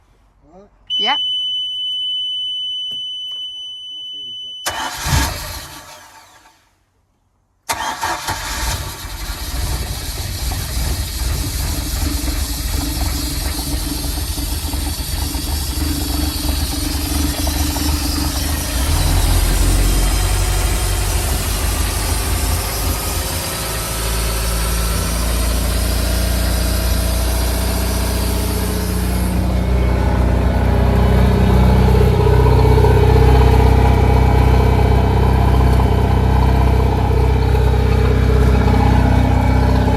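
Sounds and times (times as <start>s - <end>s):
boat engine idling: 10.3s - 24.4s.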